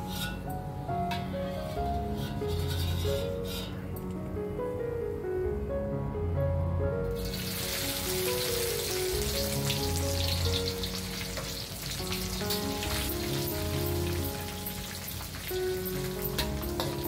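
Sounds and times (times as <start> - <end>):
background music: 0.0 - 17.0
fish deep-frying in oil: 7.2 - 17.0.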